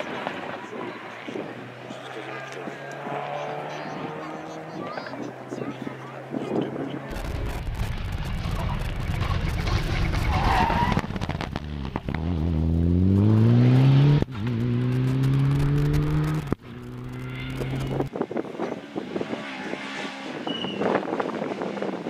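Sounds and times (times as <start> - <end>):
rally car accelerating: 0.0 - 22.0
gear upshifts: 13.1 - 22.0.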